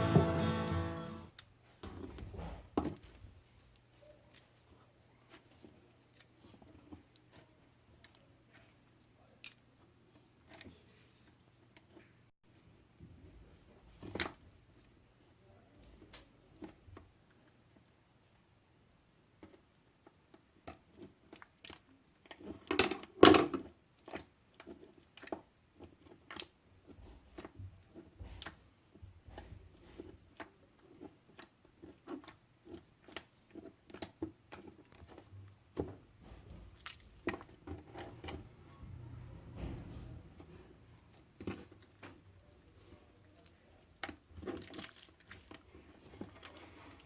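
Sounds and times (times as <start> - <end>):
wet squelch of slime: 36.4 - 38.9, 40.4 - 47.0.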